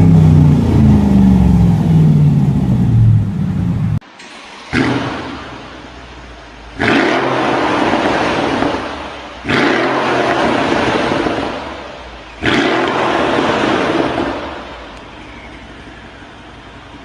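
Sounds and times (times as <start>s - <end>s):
car engine revving hard: 4.7s - 5.6s, 6.8s - 14.8s.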